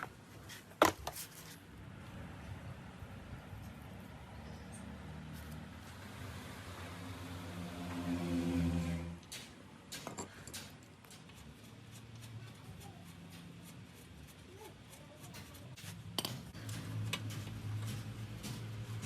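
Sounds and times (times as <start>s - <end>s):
metal parts and tools clicking: 9.2s - 11.4s.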